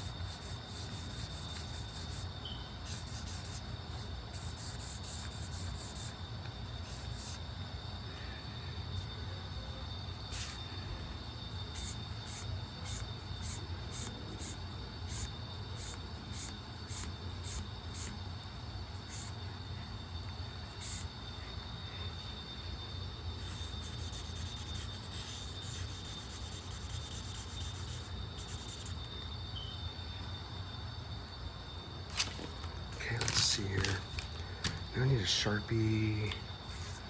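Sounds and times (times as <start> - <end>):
pencil strokes scratching on paper: 0.0 - 7.5, 11.5 - 18.1, 23.4 - 29.0, 36.7 - 37.0
steady electrical hum: 0.0 - 37.0
thin high whine: 0.0 - 37.0.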